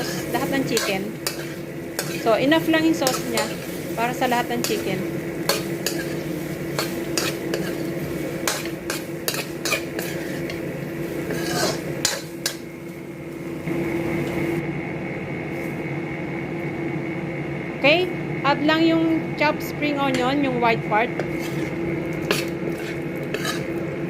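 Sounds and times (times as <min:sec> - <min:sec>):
spatula scraping a wok: 0:00.0 - 0:12.6, 0:21.1 - 0:24.0
steady hum: 0:00.0 - 0:24.0.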